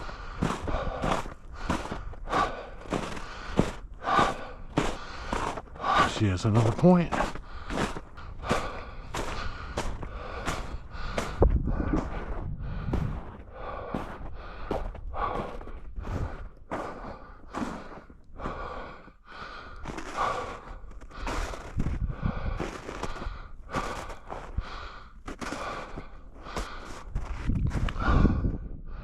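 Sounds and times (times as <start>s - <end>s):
footsteps crunching in snow: 0.0s - 18.6s, 19.8s - 24.6s, 25.2s - 27.9s
heavy breathing: 0.0s - 29.0s.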